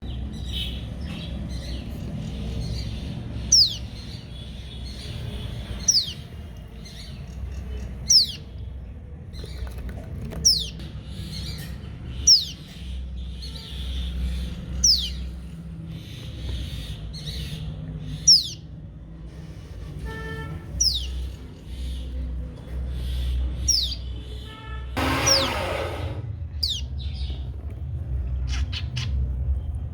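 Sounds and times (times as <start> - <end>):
young bird chirping: 1.6 - 6.3, 6.9 - 8.6, 10.4 - 15.4, 16.0 - 18.6, 20.7 - 22.1, 23.6 - 24.1, 26.6 - 27.4, 28.5 - 29.2.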